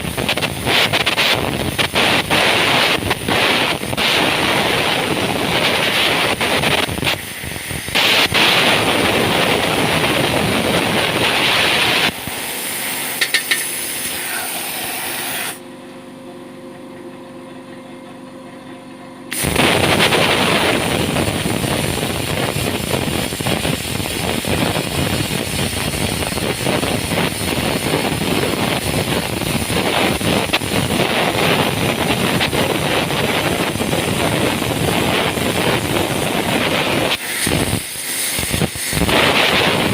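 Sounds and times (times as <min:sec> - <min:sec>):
angle grinder cutting steel: 0:01.8 - 0:15.6.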